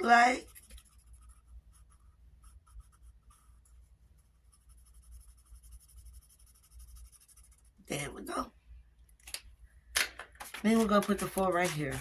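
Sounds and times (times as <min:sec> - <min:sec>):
pen scratching on paper: 0:00.0 - 0:07.8, 0:10.5 - 0:12.0.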